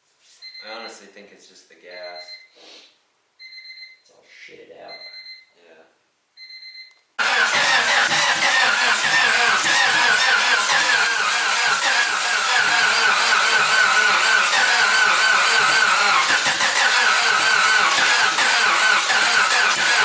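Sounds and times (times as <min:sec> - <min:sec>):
starter motor cranking: 0:07.2 - 0:20.0.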